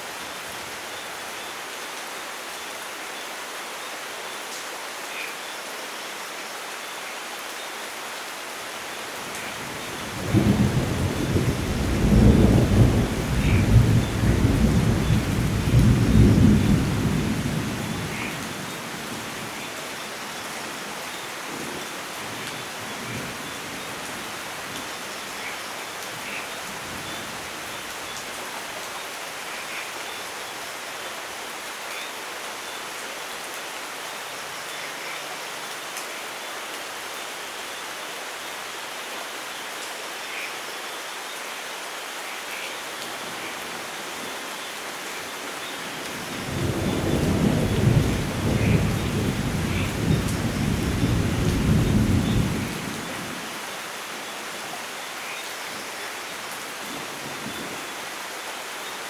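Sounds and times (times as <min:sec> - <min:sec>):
steady rainfall: 0:00.0 - 0:59.0
thunder rumbling: 0:10.0 - 0:18.3, 0:46.3 - 0:53.1.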